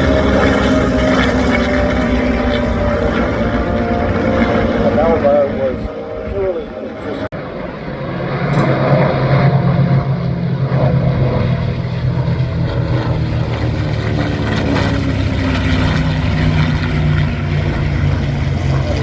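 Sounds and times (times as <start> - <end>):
propeller aircraft flying past: 0.0 - 19.0.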